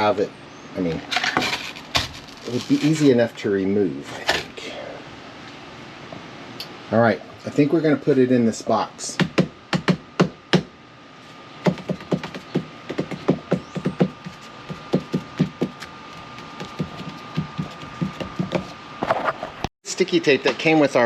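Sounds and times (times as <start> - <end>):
hard objects knocking: 11.6 - 18.7.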